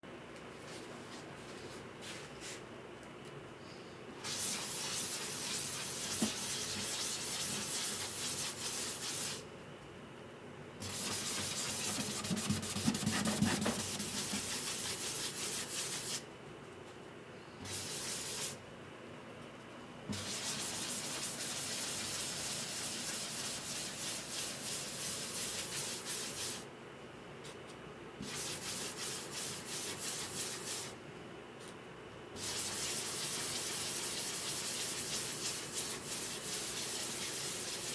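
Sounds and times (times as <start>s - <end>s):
sandpaper rubbing on wood: 4.3s - 9.4s, 10.8s - 16.2s, 17.7s - 18.6s, 20.1s - 26.6s, 28.2s - 30.9s, 32.4s - 37.9s.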